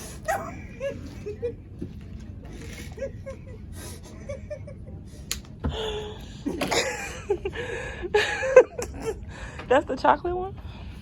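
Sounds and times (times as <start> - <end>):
women laughing: 0.2 - 1.6, 2.7 - 5.2, 6.4 - 9.3.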